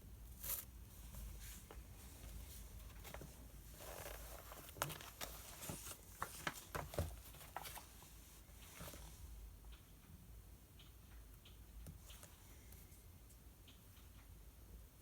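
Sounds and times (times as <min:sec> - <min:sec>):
paper rustling: 0:00.4 - 0:08.1.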